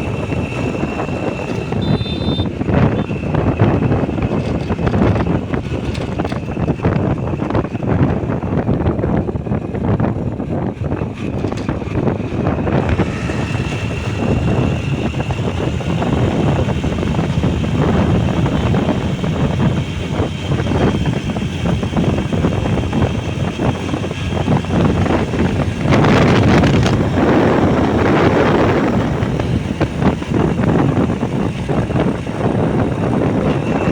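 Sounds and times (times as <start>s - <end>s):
motorbike engine running: 0.0s - 33.9s
wind rushing over microphone: 0.0s - 33.9s.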